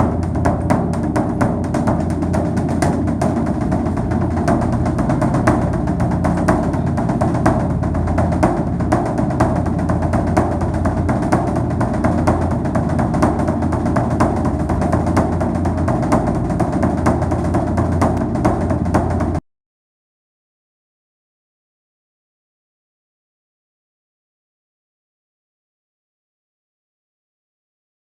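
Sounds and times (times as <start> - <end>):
drums and percussion beat: 0.0 - 19.4
low bass: 0.0 - 19.4.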